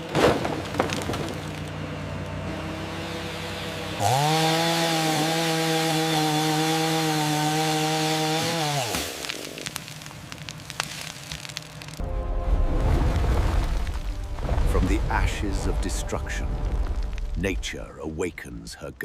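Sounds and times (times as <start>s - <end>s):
chainsaw engine running: 2.1s - 9.1s
sharp cracks and snaps: 8.8s - 12.0s
loud low rumble: 12.0s - 18.3s.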